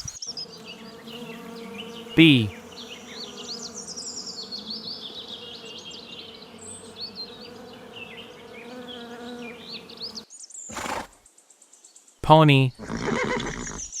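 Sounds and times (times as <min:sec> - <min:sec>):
bees buzzing: 0:00.0 - 0:10.1.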